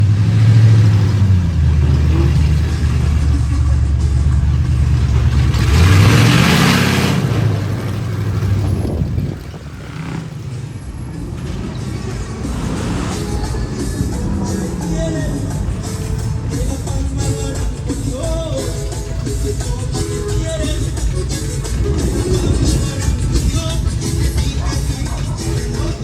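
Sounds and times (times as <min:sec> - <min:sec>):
truck engine under load: 0:00.0 - 0:26.0
loud rush of hiss: 0:11.3 - 0:17.4.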